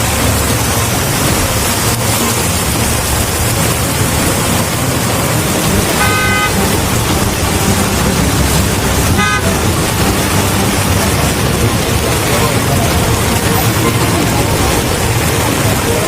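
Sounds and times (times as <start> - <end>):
heavy rain: 0.0 - 16.0
traffic engines humming: 0.0 - 16.0
vehicle horn honking: 5.8 - 10.8.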